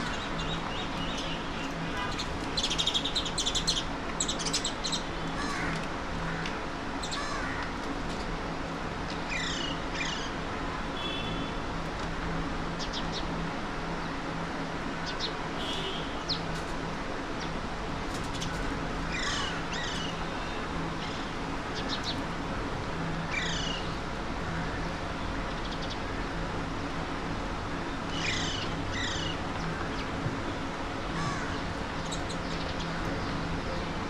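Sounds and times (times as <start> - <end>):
steady background hum: 0.0 - 34.0
parakeets screeching: 7.0 - 7.6, 19.1 - 22.1, 23.3 - 24.0, 28.1 - 30.0, 31.1 - 33.3.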